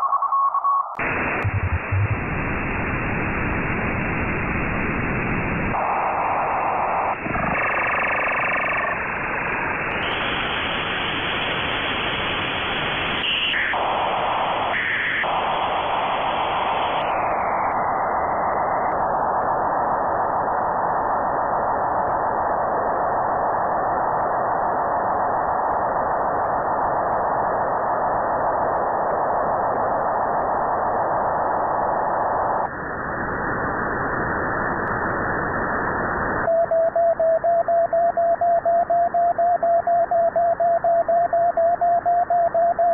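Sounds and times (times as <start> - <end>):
short radio blips: 0.0 - 2.4
steady tone: 0.9 - 10.3
radio receiver hiss: 1.0 - 33.3.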